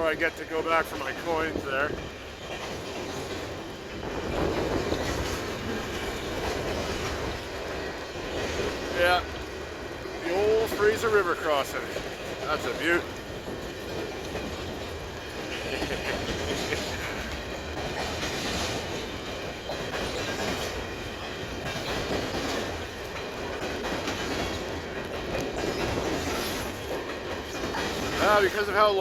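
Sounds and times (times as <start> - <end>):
train cars rumbling and clattering: 0.0 - 29.0.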